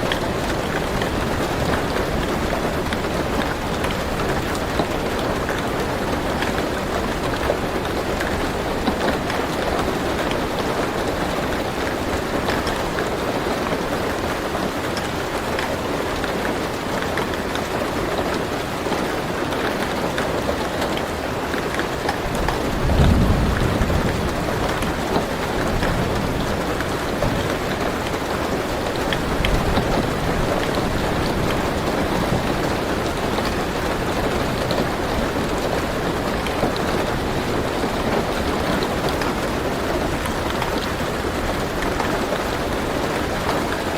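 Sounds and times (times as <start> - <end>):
rain on a car roof: 0.0 - 43.9
thunder rumbling: 22.3 - 43.8.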